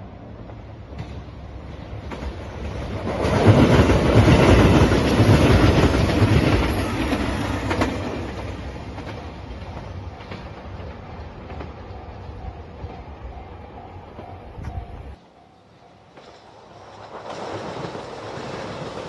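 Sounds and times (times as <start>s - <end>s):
train passing with wheels clattering: 0.0s - 19.0s.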